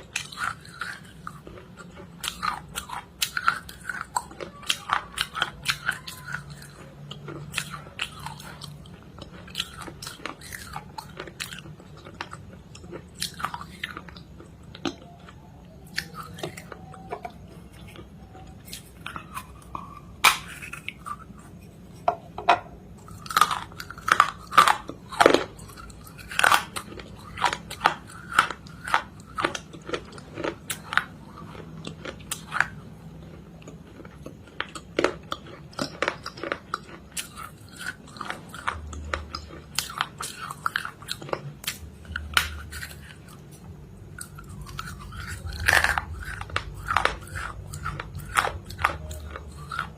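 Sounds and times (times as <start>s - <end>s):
low steady hum: 0.0s - 49.9s
person chewing something crunchy: 0.0s - 49.9s.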